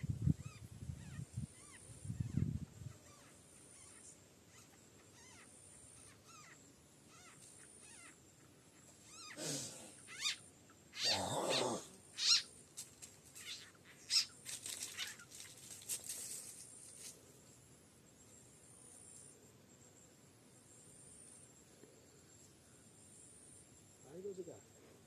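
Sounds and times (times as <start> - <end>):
faint animal chirps: 0.0 - 12.5, 13.4 - 15.6
animal cries: 0.4 - 8.2, 9.0 - 12.5, 13.4 - 14.3.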